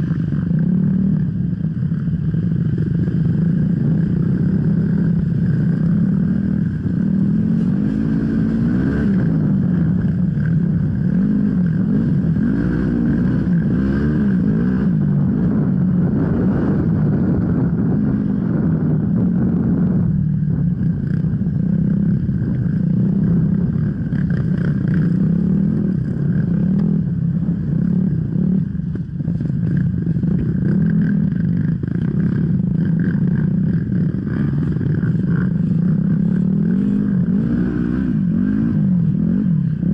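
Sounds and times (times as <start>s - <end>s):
dirt bike engine revving: 3.0s - 19.9s, 30.1s - 39.9s.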